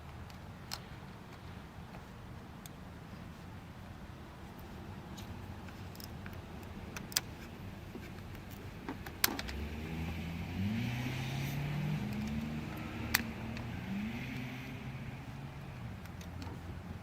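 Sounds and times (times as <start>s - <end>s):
van engine starting and revving: 9.1s - 17.0s.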